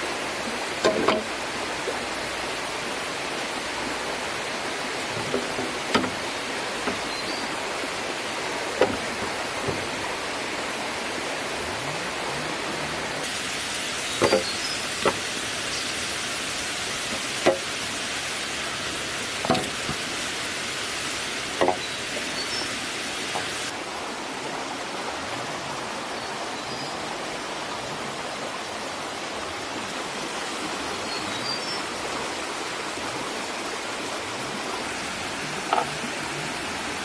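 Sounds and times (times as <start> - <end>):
small river running: 0.0 - 37.0
sharp knocks: 21.6 - 21.9.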